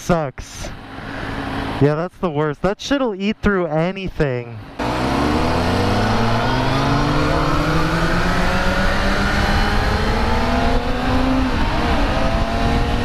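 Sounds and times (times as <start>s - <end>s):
motorcycle engine accelerating: 4.7s - 13.0s
wind noise on microphone: 7.4s - 13.0s.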